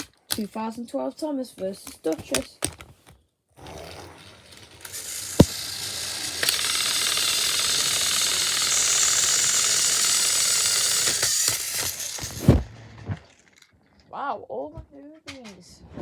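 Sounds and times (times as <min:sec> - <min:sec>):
toy train motors whirring: 0:03.6 - 0:13.7.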